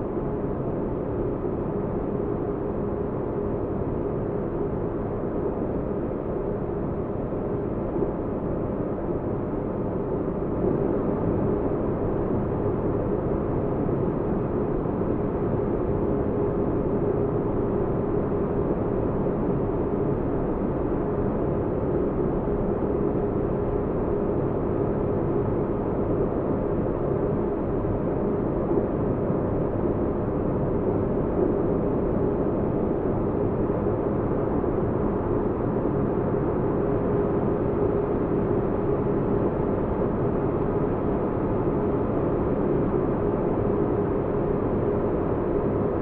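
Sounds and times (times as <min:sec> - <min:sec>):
faint constant hum: 0:00.0 - 0:46.0.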